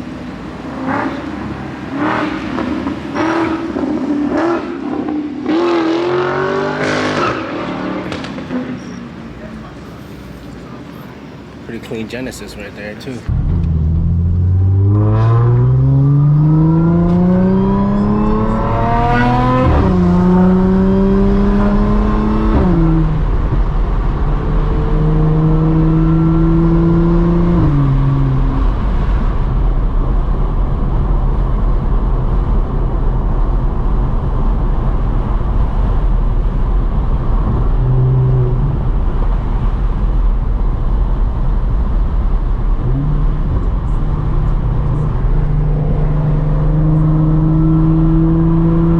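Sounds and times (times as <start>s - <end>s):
car engine accelerating hard: 13.3s - 48.9s.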